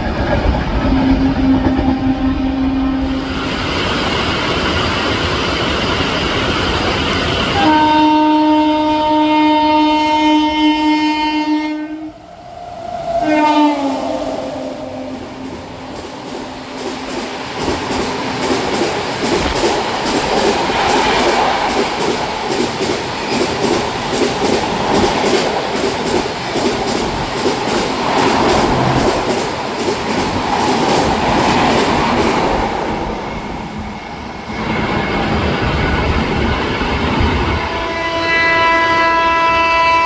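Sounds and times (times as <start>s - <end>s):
train horn: 0.8s - 3.4s, 7.6s - 16.7s, 37.6s - 40.0s
train wheels clattering: 15.3s - 37.7s.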